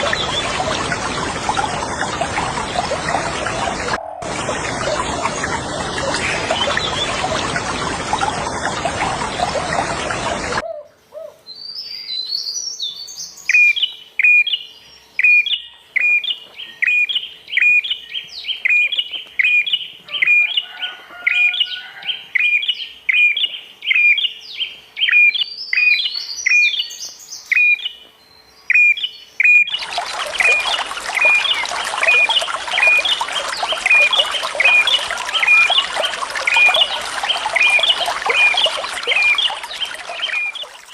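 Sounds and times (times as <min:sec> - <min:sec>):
running water: 0:00.0 - 0:10.6, 0:29.7 - 0:40.9.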